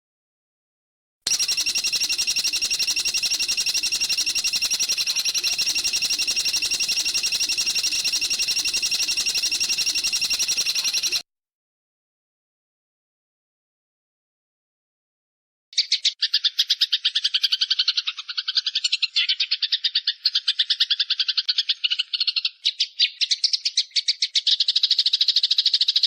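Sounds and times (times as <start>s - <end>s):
bird metallic trill: 1.3s - 11.2s.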